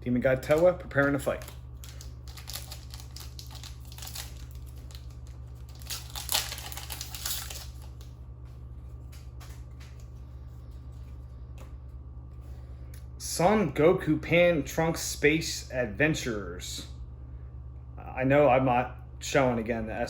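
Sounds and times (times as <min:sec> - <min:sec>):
low electrical hum: 0:00.0 - 0:20.0
trading cards rustling: 0:00.4 - 0:11.9.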